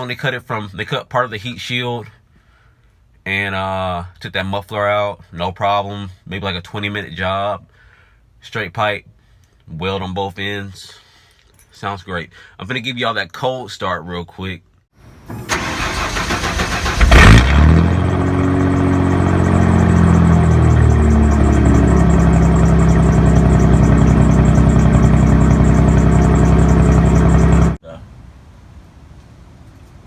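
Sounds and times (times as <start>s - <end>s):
starter motor cranking: 15.2s - 27.8s
loud pickup engine idling: 15.3s - 27.8s.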